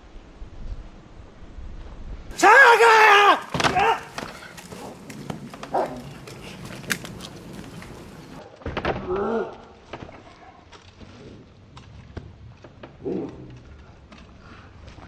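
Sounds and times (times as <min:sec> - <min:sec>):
clicks and scuffs: 0:03.3 - 0:08.4.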